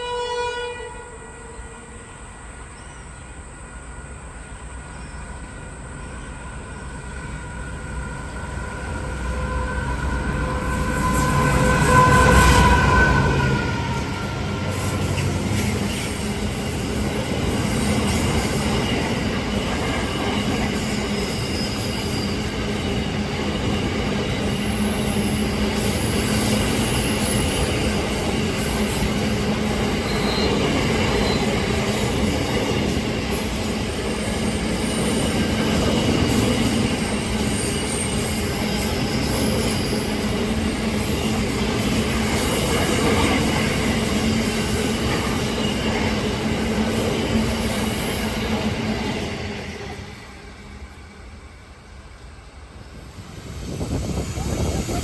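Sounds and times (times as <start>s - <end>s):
train wheels on rails: 1.6s - 55.0s
faint high wheel squeals: 4.9s - 16.4s, 20.1s - 23.0s, 23.8s - 46.0s.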